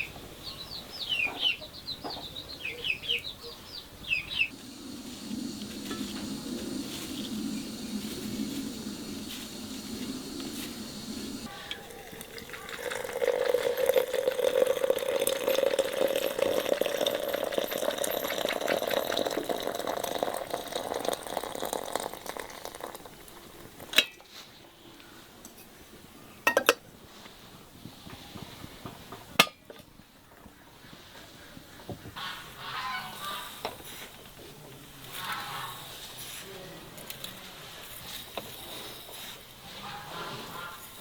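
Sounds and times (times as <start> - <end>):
dishes clinking: 11.5 - 22.4, 26.5 - 26.8, 29.4 - 29.8
liquid splashing in a bowl: 11.8 - 23.9.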